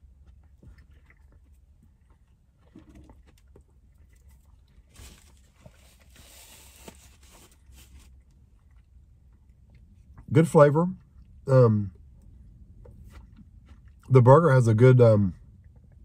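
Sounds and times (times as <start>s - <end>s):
faint chewing with mouth clicks: 0.0s - 6.5s, 7.3s - 14.2s, 15.4s - 16.0s
paper rustling and crinkling: 4.9s - 8.1s.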